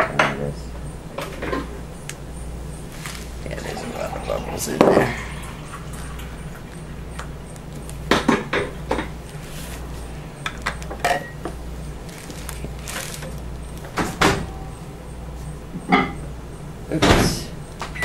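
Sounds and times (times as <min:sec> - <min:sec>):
steady low hum: 0:00.0 - 0:18.0
containers and utensils knocking: 0:03.1 - 0:07.3.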